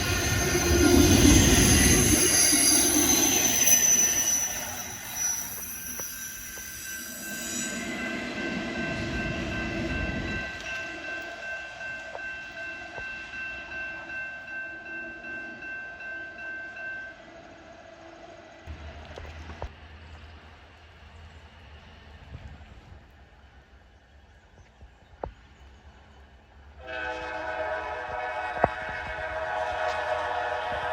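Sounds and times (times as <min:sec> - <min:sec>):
freight train wheels squealing: 0:00.0 - 0:12.3
rhythmic train car clatter: 0:00.0 - 0:30.9.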